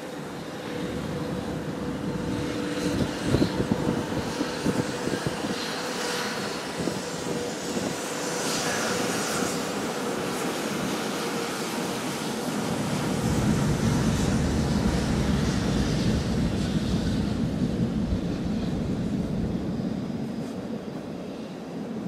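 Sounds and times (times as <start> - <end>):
freight train rumbling past: 0.0 - 5.4, 12.3 - 21.6.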